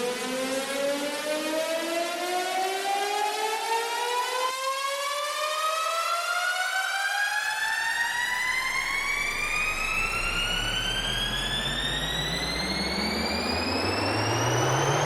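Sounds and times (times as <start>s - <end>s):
low rising hum: 7.8s - 15.0s
rising buzzy test tone: 8.0s - 15.0s.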